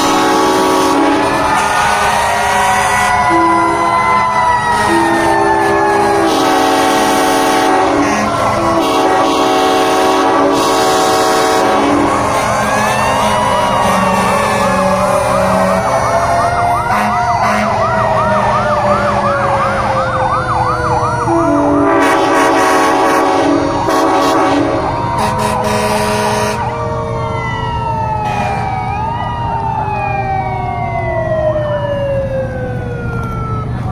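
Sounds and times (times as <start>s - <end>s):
fast yelping siren: 0.0s - 10.6s, 11.3s - 33.9s
loud horn blasts: 0.0s - 20.0s, 21.3s - 26.8s, 28.2s - 28.7s
wailing sirens: 0.0s - 33.9s.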